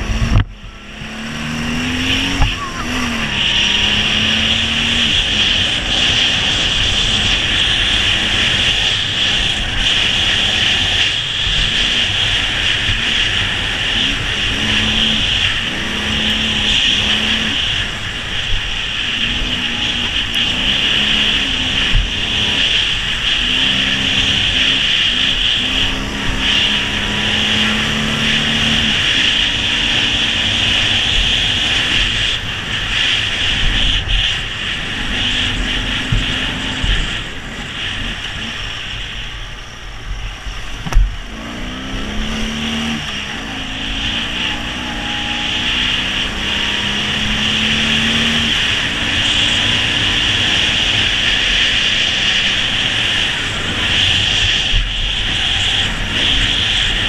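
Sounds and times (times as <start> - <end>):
motorcycle engine shifting gears: 0.0 - 57.0
wind and road noise: 0.0 - 57.0
sharp thump: 40.8 - 41.1.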